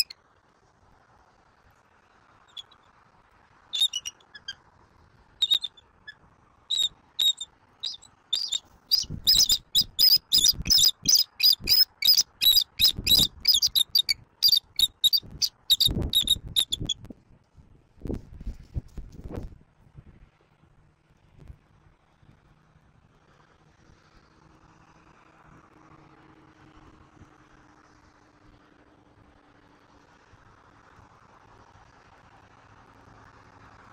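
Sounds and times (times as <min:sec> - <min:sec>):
bird calling high sharp notes: 0:02.5 - 0:02.8, 0:03.8 - 0:04.6, 0:05.4 - 0:05.8, 0:06.7 - 0:17.0.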